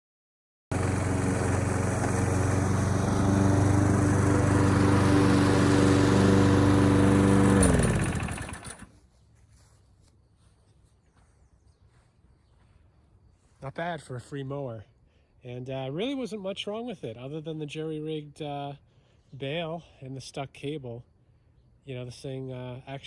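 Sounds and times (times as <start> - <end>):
lawn mower engine running: 0.7 - 9.0.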